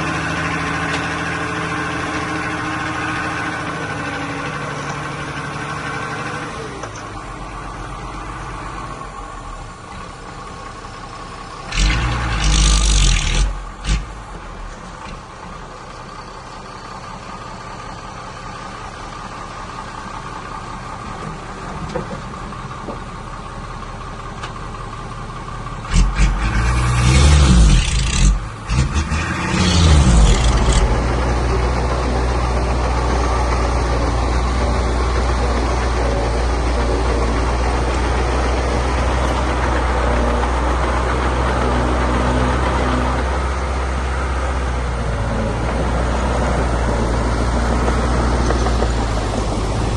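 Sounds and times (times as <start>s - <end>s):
diesel engine revving: 0.0s - 22.7s, 25.0s - 49.9s.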